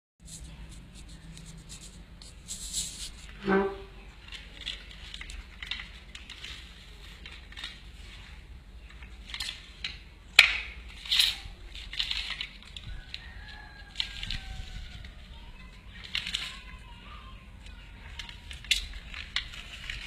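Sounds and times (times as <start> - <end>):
material rustling: 0.2 - 8.4.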